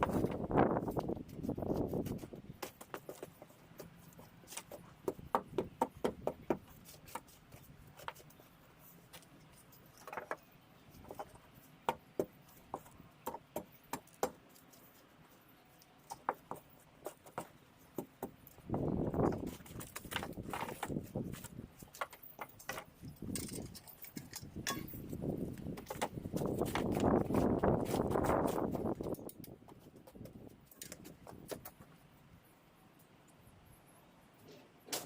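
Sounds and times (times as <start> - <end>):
knocks and clicks of timber and tools: 9.9 - 14.4, 19.2 - 27.1.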